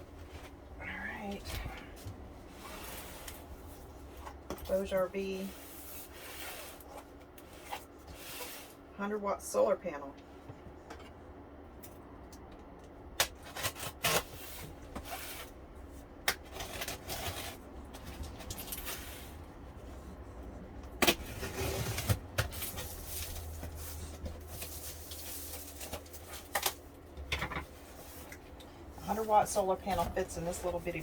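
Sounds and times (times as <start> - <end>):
packaging rubs and scrapes: 5.3 - 8.8, 21.1 - 26.5.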